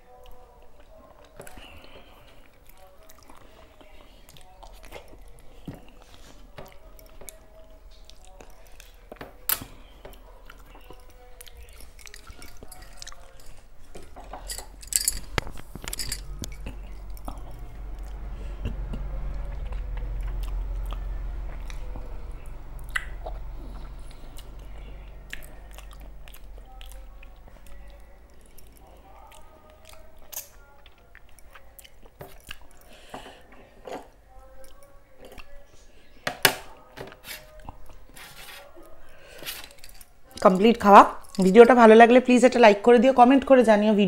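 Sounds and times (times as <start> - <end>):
chewing rice: 0.1 - 9.2, 9.9 - 14.4, 15.2 - 35.7
wet mouth clicks and lip smacks: 22.8 - 23.4.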